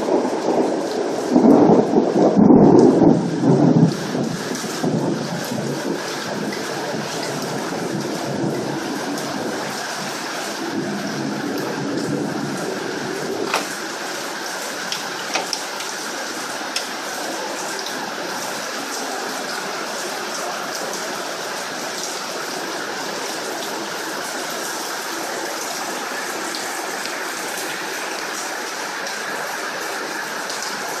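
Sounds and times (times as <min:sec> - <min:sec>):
sharp raindrop hits: 0:00.0 - 0:18.5
heavy rain falling: 0:00.0 - 0:31.0.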